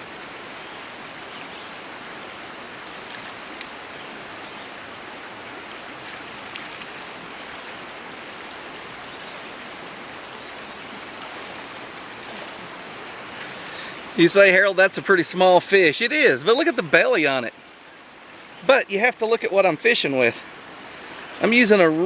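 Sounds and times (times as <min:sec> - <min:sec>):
river water rushing over rocks: 0:00.0 - 0:22.0.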